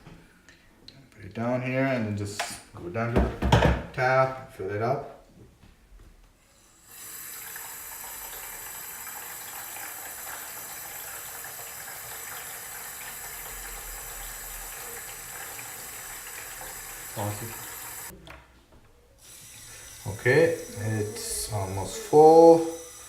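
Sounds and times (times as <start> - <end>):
water pouring into tank: 6.9 - 18.1.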